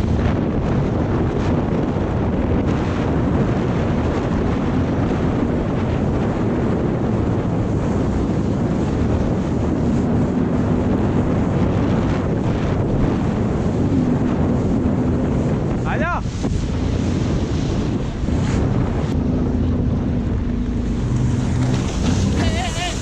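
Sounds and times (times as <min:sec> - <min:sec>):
jet ski engine drone: 0:00.0 - 0:23.0
wind buffeting microphone: 0:00.0 - 0:23.0
water rushing past: 0:15.8 - 0:23.0.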